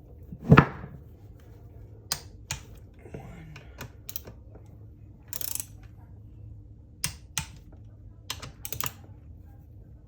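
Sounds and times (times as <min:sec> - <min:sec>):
low steady hum: 0:00.0 - 0:10.0
ratcheting wrench clicks: 0:05.3 - 0:05.8, 0:08.3 - 0:09.0.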